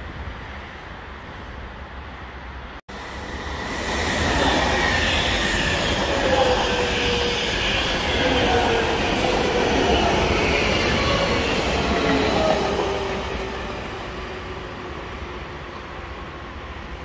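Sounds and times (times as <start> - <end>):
train passing with rail noise: 0.0 - 17.0.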